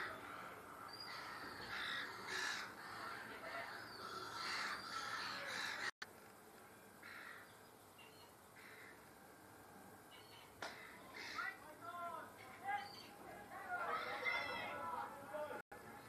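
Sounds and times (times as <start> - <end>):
birds cawing: 0.0 - 5.9, 7.0 - 7.6, 8.5 - 9.0, 10.2 - 11.6.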